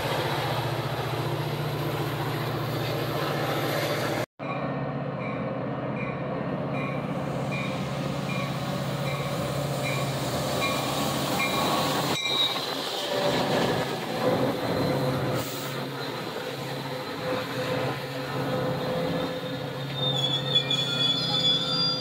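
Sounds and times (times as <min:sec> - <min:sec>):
diesel locomotive engine humming: 0:00.0 - 0:22.0
locomotive bell ringing: 0:04.4 - 0:13.4
thin brake squeal: 0:11.5 - 0:13.4, 0:19.1 - 0:22.0.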